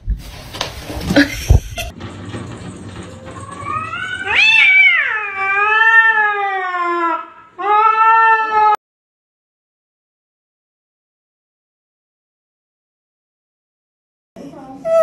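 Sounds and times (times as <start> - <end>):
cat yowling: 3.4 - 8.8.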